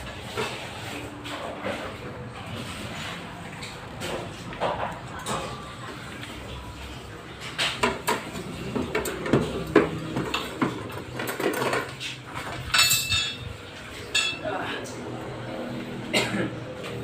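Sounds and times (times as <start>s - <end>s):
metal objects clinking and knocking: 7.5s - 13.5s.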